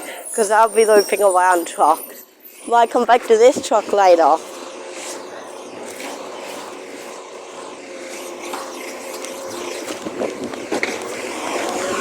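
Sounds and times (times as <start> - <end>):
road noise: 0.0 - 12.0
vehicle engine hum: 2.8 - 12.0.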